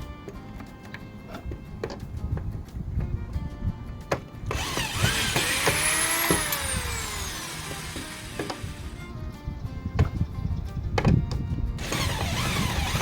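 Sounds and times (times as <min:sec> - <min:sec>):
background music: 0:00.0 - 0:13.0
power drill whining: 0:04.5 - 0:09.1, 0:11.8 - 0:13.0.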